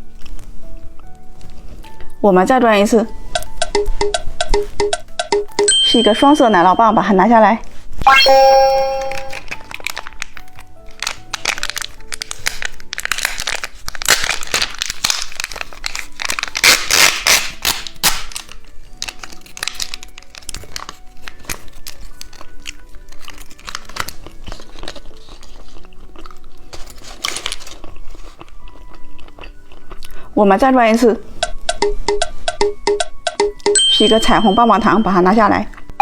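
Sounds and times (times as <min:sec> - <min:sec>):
soft background music: 0:00.0 - 0:36.0
plastic wrapper crinkling and tearing: 0:09.2 - 0:30.2.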